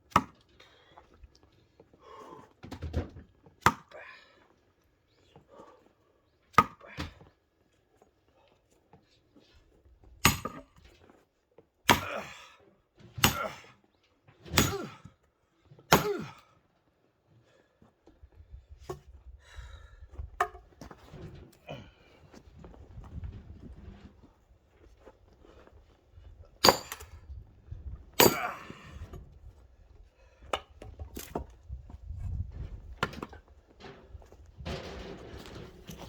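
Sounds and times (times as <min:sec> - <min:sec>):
axe chopping firewood: 0:00.1 - 0:00.4, 0:03.6 - 0:04.0, 0:06.5 - 0:07.2, 0:10.2 - 0:10.8, 0:11.9 - 0:12.3, 0:13.2 - 0:13.6, 0:14.5 - 0:15.1, 0:15.9 - 0:16.4, 0:26.6 - 0:27.2, 0:28.2 - 0:28.8, 0:30.4 - 0:31.5.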